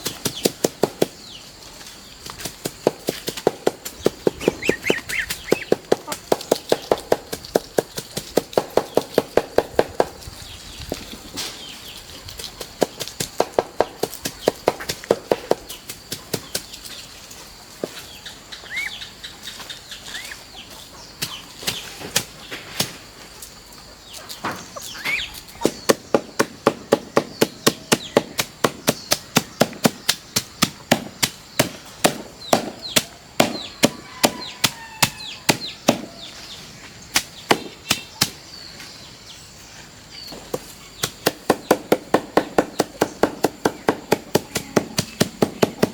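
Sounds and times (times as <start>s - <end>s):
sharp chopping strikes: 2.4s - 10.2s, 25.6s - 36.2s, 37.2s - 38.4s, 40.5s - 45.9s
short chirping bird calls: 4.0s - 7.0s, 18.0s - 22.0s, 24.0s - 26.0s.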